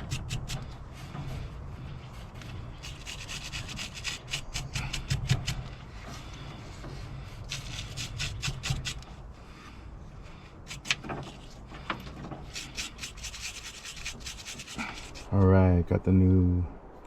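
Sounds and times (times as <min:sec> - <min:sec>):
brush scrubbing metal terminals: 0:00.0 - 0:00.8, 0:02.2 - 0:06.4, 0:07.4 - 0:09.2, 0:10.3 - 0:15.3.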